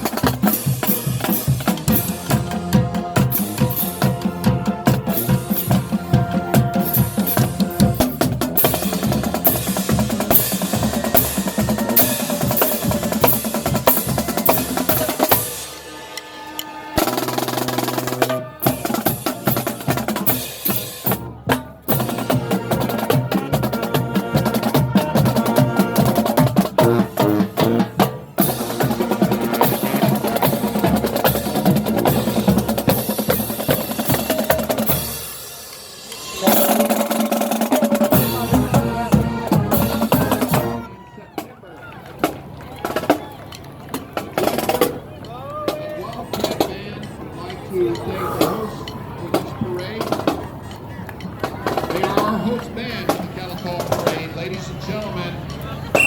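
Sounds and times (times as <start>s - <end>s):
snare and bass drums beating: 0.0s - 15.6s
marching band playing: 0.0s - 56.0s.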